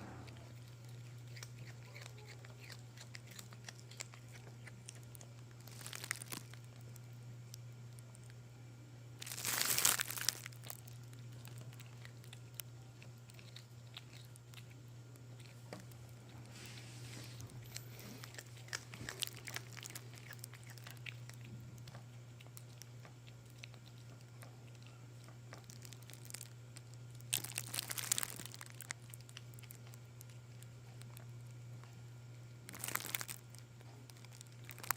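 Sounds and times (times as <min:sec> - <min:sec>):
kitten crunching vegetable peels: 0:00.0 - 0:34.9
steady low hum: 0:00.0 - 0:34.9
crinkly rustling: 0:00.3 - 0:07.0, 0:09.2 - 0:14.7, 0:15.4 - 0:21.5, 0:23.5 - 0:26.5, 0:27.1 - 0:31.2, 0:32.7 - 0:34.9.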